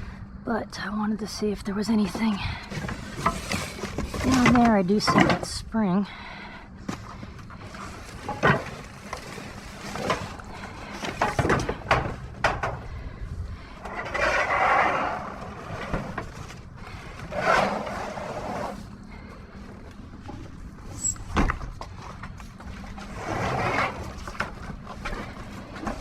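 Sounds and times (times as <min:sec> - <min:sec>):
junk knocking and clanking: 0:02.0 - 0:05.6, 0:07.8 - 0:13.0
scraping rustles: 0:02.0 - 0:05.6, 0:06.9 - 0:12.8, 0:13.6 - 0:19.6, 0:20.2 - 0:26.0.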